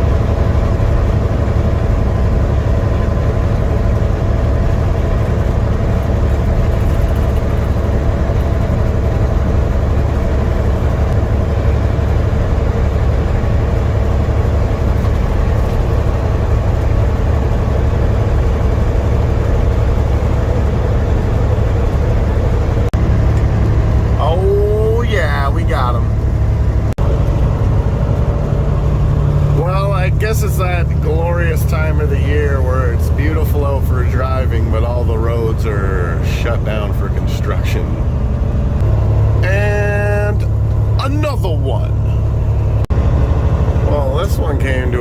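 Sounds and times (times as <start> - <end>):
road noise: 0.0 - 45.0
truck diesel engine droning: 0.0 - 45.0.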